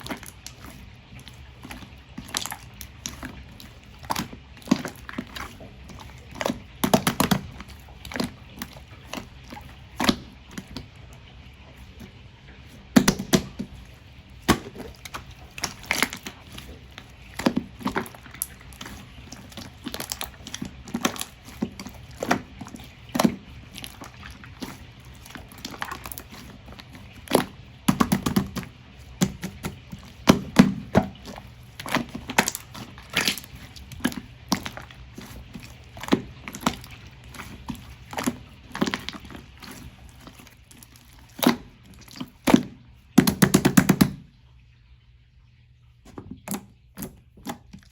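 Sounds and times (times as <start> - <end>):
slime clicking and squelching: 0.0 - 44.3, 46.1 - 47.9.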